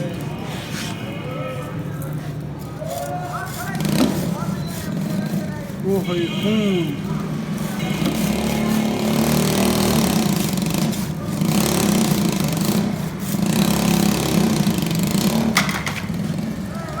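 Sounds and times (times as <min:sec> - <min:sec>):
engine running: 0:03.6 - 0:17.0.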